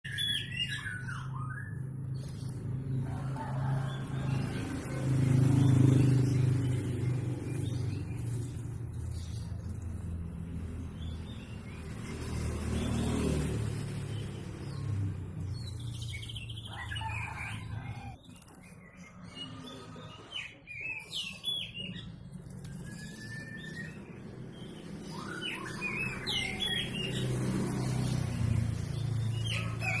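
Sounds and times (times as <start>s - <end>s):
bird chirping: 0.0s - 30.0s
bird whistling: 0.1s - 1.8s, 22.7s - 24.2s, 25.0s - 27.0s
low engine hum: 0.4s - 18.2s.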